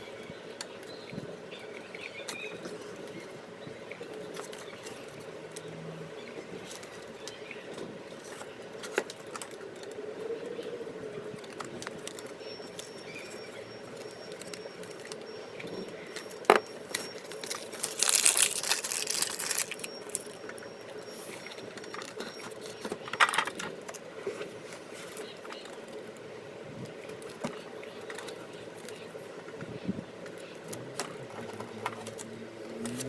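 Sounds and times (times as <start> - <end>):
packet wrapper crinkling: 16.8 - 20.5.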